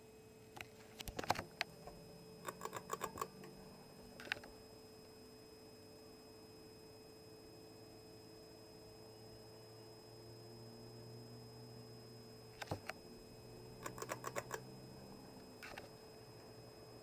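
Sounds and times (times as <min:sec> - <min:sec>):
ceiling fan motor humming: 0:00.0 - 0:17.0
sharp clicks: 0:02.4 - 0:03.3, 0:13.8 - 0:14.7.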